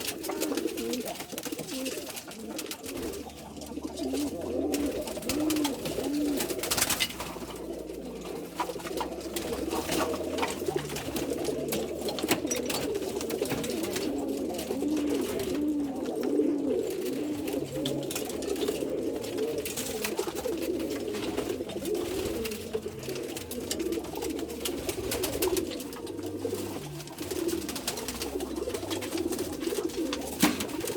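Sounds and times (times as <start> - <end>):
pigeons cooing: 0.0 - 30.9.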